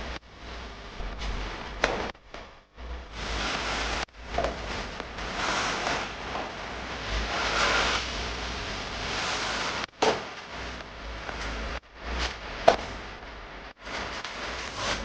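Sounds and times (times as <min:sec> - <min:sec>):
scraping and rustling: 0:13.8 - 0:15.0.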